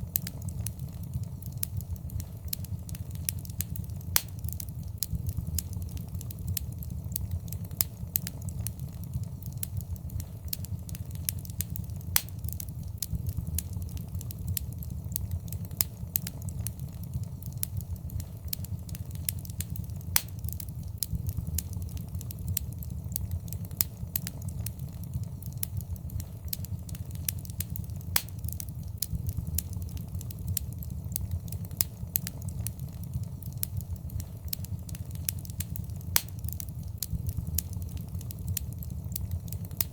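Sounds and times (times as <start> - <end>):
fireplace fire crackling: 0.0 - 39.9.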